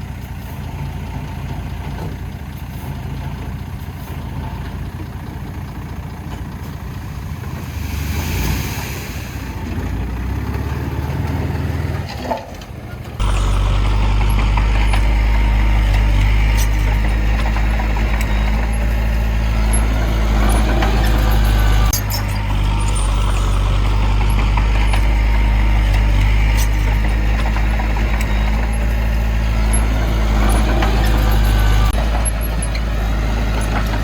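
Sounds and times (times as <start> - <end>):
heavy diesel engine running: 0.0 - 34.0
brief hiss: 7.6 - 9.9.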